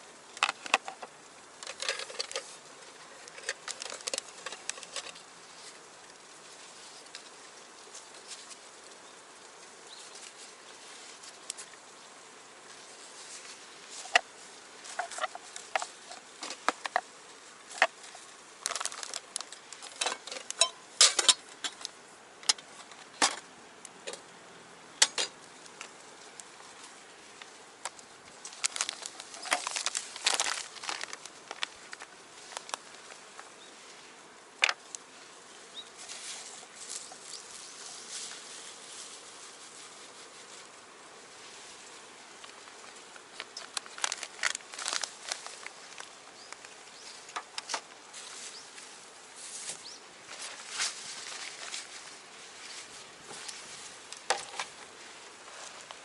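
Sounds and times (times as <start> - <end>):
faint steady hiss: 0.0 - 56.0
wood fire crackling and popping: 18.6 - 22.0, 27.8 - 33.5.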